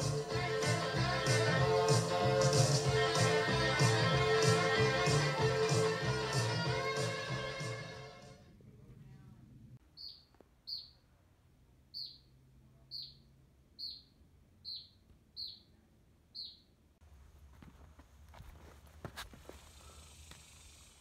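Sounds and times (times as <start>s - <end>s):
bird high chirp: 9.9s - 11.1s, 11.9s - 16.8s.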